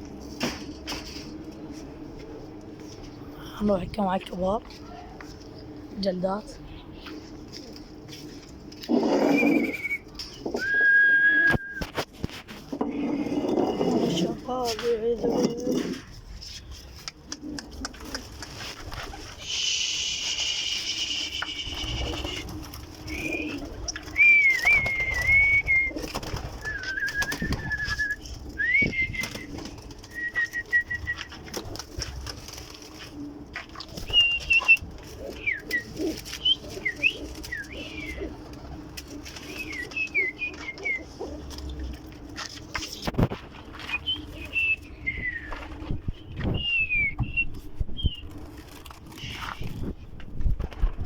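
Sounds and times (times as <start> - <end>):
pigeons cooing: 6.6 - 11.6, 12.6 - 16.2, 16.9 - 43.0
pigeon wings flapping: 16.7 - 51.0.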